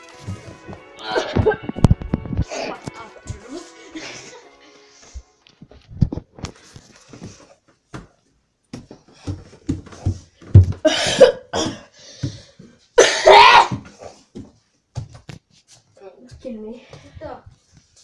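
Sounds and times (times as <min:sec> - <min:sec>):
person coughing: 0:10.8 - 0:11.9, 0:13.0 - 0:13.8.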